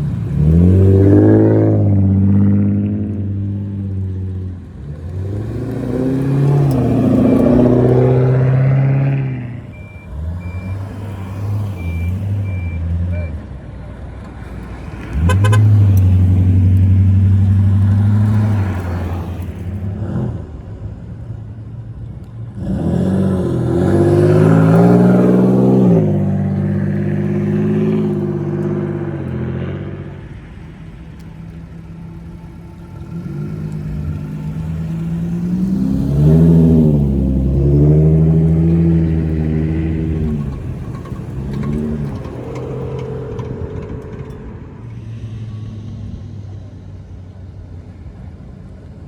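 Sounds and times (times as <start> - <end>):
cars driving past: 0.0 - 49.0
engine rev blip: 5.0 - 13.5, 15.0 - 19.4, 23.6 - 46.6.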